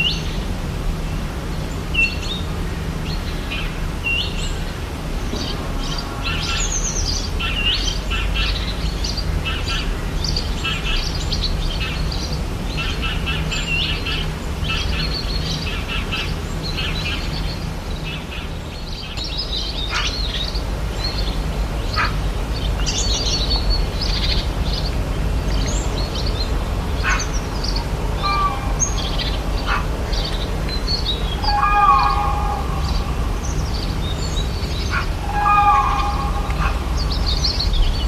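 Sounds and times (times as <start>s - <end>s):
steady low rumble: 0.3s - 38.0s
birds chirping and whistling: 25.5s - 38.0s
loud multi-tone bird call: 27.0s - 38.0s.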